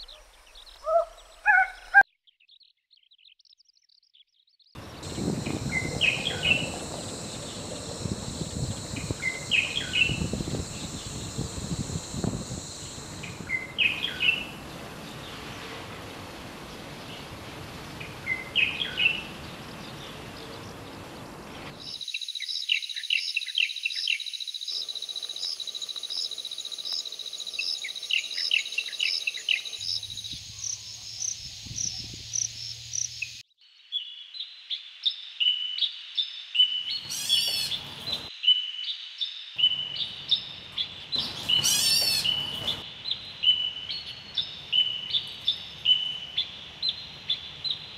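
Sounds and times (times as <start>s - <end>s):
bird calls: 0.0s - 3.4s, 4.8s - 15.7s, 36.7s - 38.7s, 39.6s - 47.9s.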